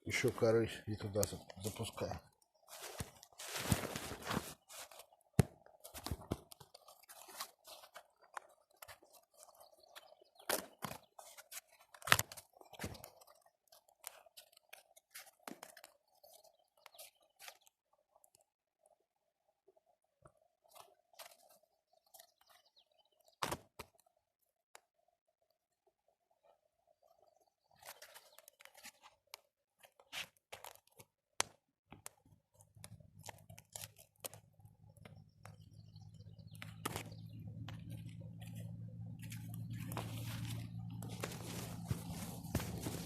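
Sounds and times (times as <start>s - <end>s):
bark crunching: 2.6s - 16.3s, 32.0s - 43.0s.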